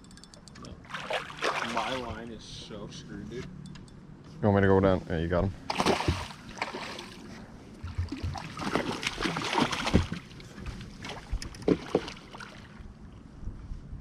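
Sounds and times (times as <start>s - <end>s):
water splashing and sloshing: 0.7s - 2.3s, 5.6s - 12.9s.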